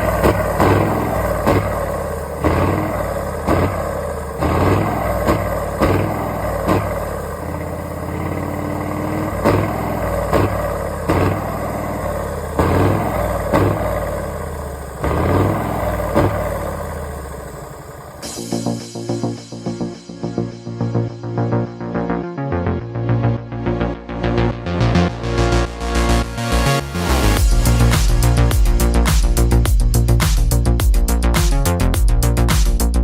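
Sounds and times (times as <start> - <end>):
heavy truck engines revving: 0.0 - 18.8, 23.2 - 33.0
sudden sharp sounds: 0.0 - 19.9.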